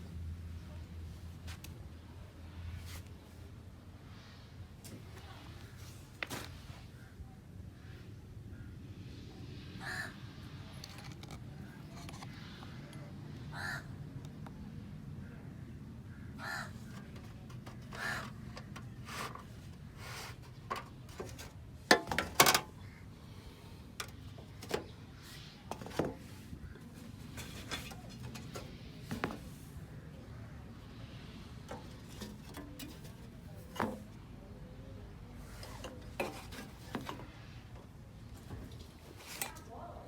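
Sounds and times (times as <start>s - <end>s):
crows cawing: 9.8s - 10.2s, 13.5s - 14.0s, 16.1s - 17.0s, 17.9s - 18.4s.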